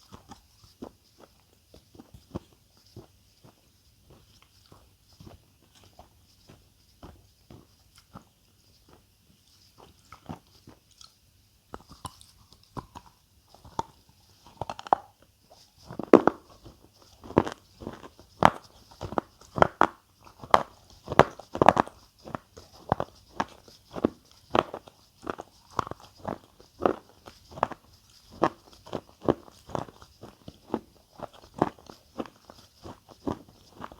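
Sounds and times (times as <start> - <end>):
person chewing crisp food: 0.0 - 33.9.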